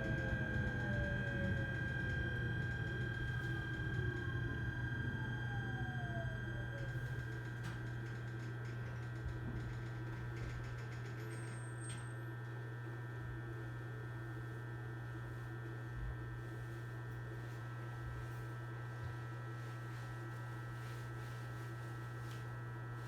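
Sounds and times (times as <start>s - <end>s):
electric train motor whine: 0.0s - 8.2s.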